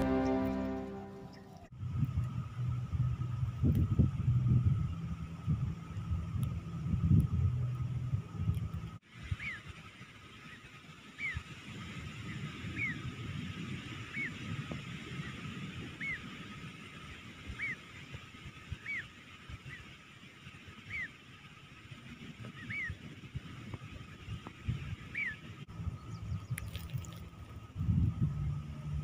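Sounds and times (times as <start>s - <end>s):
low rumble: 0.0s - 9.0s
nightjar calling: 16.0s - 16.3s, 17.5s - 17.9s, 18.8s - 19.9s, 20.8s - 21.2s, 22.5s - 23.0s, 25.1s - 25.4s.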